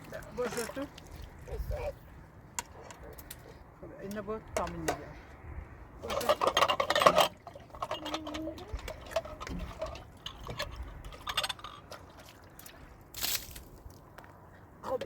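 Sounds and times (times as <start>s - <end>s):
liquid splashing and pouring: 6.8s - 13.9s.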